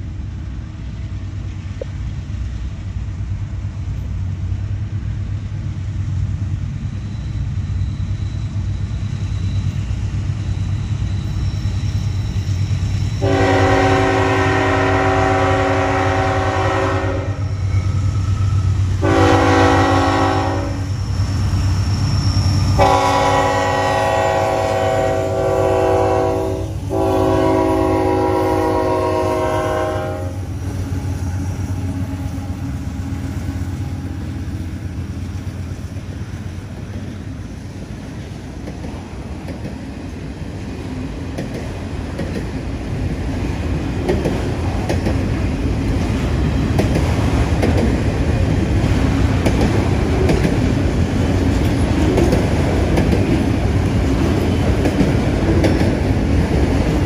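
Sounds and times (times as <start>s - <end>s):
diesel locomotive drone: 0.0s - 57.0s
train wheels rumbling on rails: 0.0s - 57.0s
train air horn blasts: 13.2s - 21.0s, 22.7s - 33.2s.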